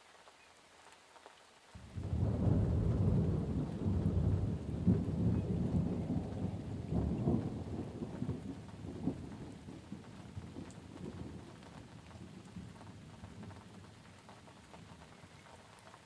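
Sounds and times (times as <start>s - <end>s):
light rain: 0.0s - 16.0s
rolling thunder: 1.8s - 14.0s.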